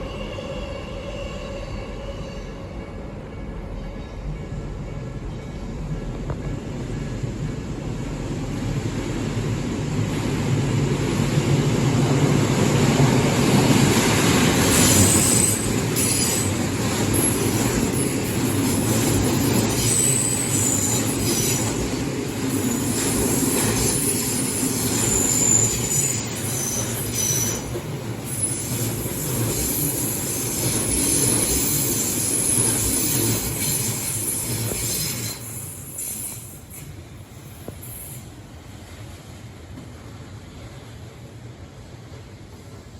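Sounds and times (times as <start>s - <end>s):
train wheels rumbling on rail: 0.0s - 42.9s
high-pitched wheel squeals: 14.7s - 16.6s, 19.7s - 21.8s, 23.8s - 36.9s.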